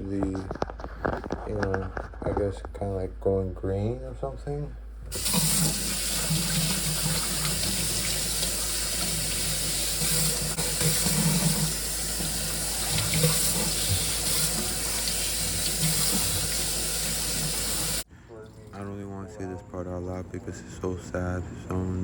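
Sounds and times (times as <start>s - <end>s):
tap water running: 5.1s - 18.1s.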